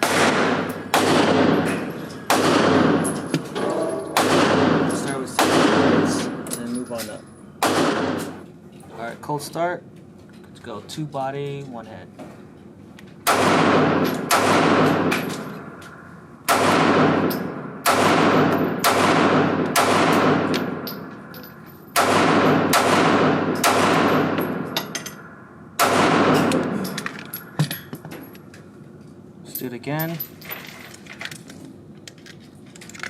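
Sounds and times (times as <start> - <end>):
pistol shots: 0.0 - 3.3, 4.1 - 6.4, 7.6 - 8.4, 13.2 - 15.8, 16.5 - 20.9, 21.9 - 24.8, 25.8 - 26.9.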